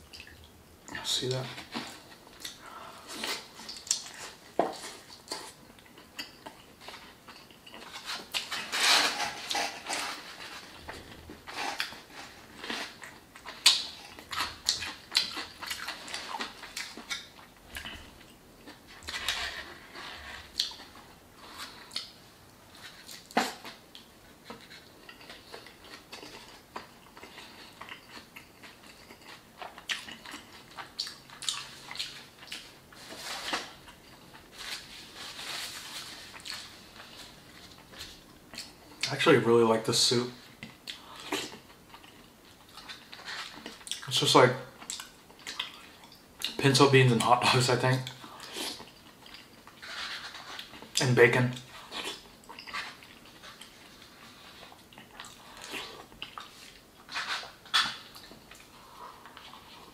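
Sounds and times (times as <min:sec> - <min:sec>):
biting and chewing: 0:01.6 - 0:22.2.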